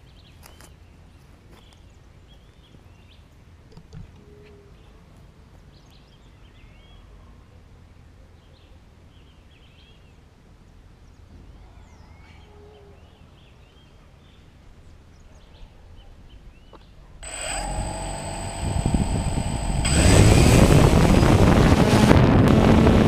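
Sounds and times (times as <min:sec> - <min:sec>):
low background rumble: 0:17.2 - 0:23.0.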